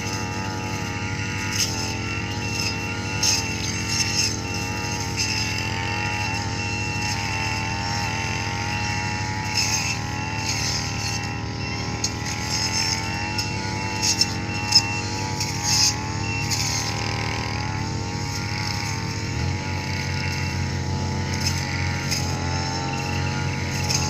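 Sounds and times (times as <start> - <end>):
heavy machinery engine running: 0.0 - 24.0.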